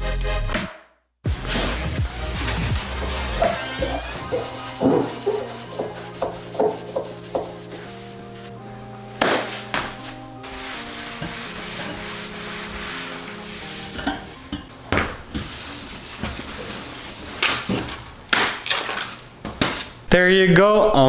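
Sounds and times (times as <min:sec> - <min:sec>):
background music: 0:00.0 - 0:15.0
sanding metal panels: 0:01.4 - 0:08.5, 0:09.2 - 0:14.6, 0:15.4 - 0:17.9.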